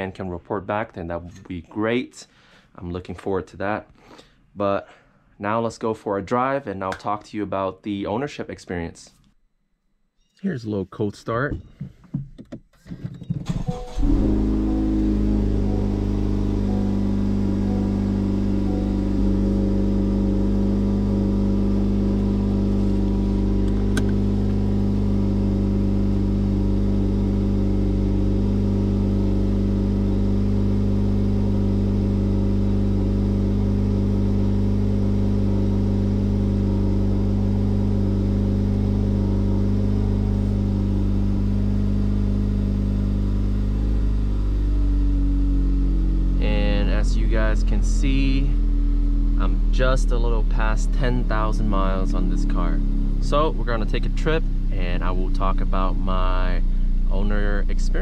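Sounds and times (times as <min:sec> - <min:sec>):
car engine idling: 0:13.5 - 0:58.0.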